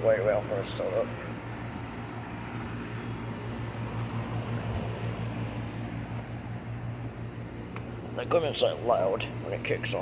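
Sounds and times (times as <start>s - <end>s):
compressor hum: 0.0s - 10.0s
fan noise: 0.0s - 10.0s.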